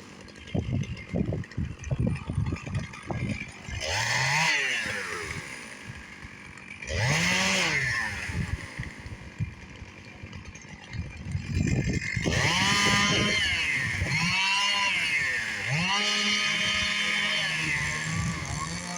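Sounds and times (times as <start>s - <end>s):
chainsaw idling and revving: 0.0s - 18.9s.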